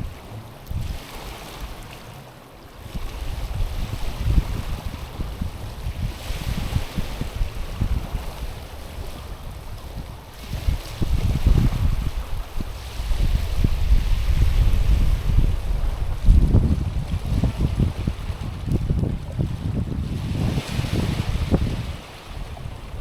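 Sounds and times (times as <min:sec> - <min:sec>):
waves washing over stony shore: 0:00.0 - 0:23.0
wind buffeting microphone: 0:00.0 - 0:23.0.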